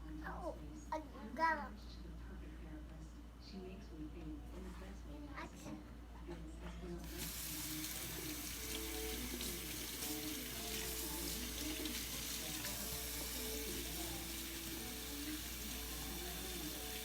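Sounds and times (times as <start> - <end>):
tap water running into sink: 7.0 - 17.0.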